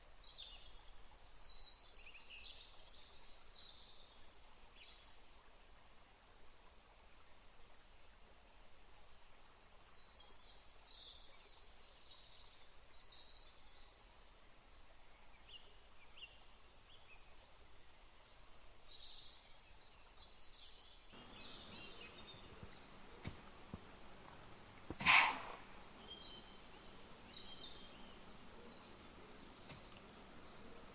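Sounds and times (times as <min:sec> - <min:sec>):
background hiss: 0:21.2 - 0:30.9
faint birds chirping: 0:21.2 - 0:30.9.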